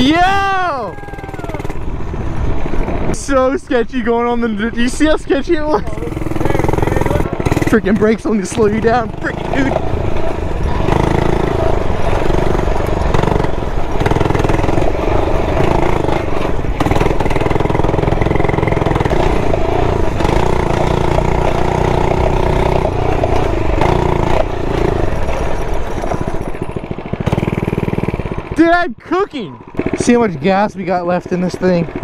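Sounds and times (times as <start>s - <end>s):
mini bike engine revving: 0.0s - 3.5s, 4.2s - 32.0s.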